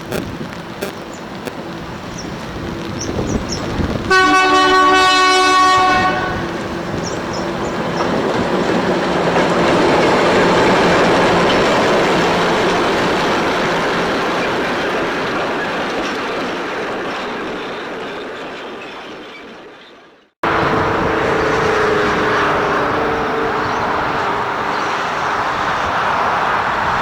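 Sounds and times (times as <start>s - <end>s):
locomotive engine and wheels passing: 0.0s - 27.0s
locomotive horn: 4.1s - 6.6s.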